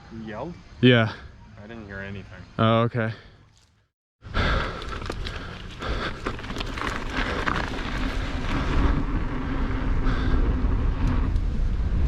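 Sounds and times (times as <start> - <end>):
bike rattling: 4.4 - 12.0
tyre rumble: 4.8 - 9.6
wind rushing over microphone: 6.4 - 12.0.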